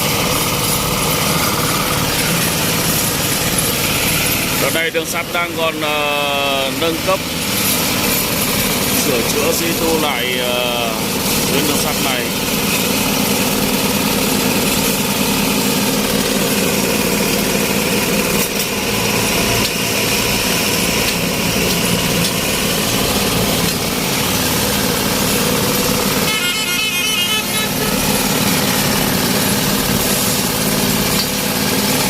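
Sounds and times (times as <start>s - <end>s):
vibrating ballast tampers running: 0.0s - 32.0s
warbling horn-like tone: 26.2s - 28.8s.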